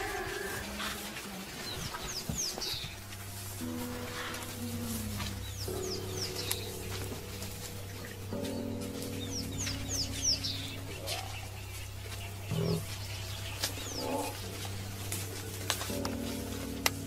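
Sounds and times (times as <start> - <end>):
low animal calls: 0.0 - 2.0, 12.5 - 14.9
wild birds chirping: 0.0 - 17.0
low hum: 2.8 - 17.0.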